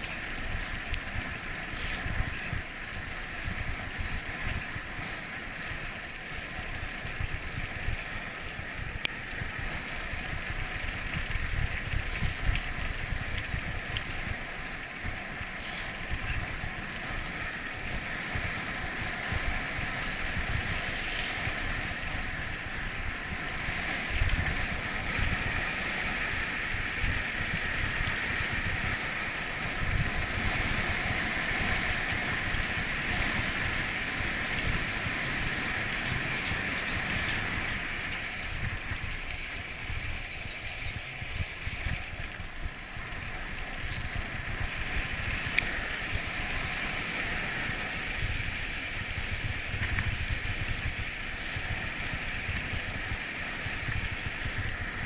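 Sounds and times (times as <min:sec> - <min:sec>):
wind buffeting microphone: 0:00.0 - 0:55.0
rushing hiss: 0:20.0 - 0:21.7, 0:23.6 - 0:29.6, 0:30.4 - 0:42.2, 0:44.6 - 0:54.9.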